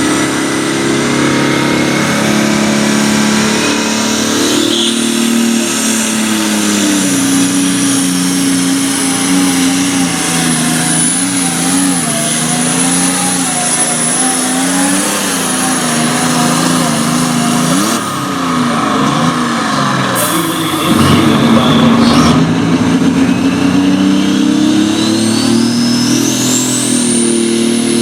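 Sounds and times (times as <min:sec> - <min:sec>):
tractor engine at full throttle: 0:00.0 - 0:28.0
high steady whine: 0:15.1 - 0:28.0.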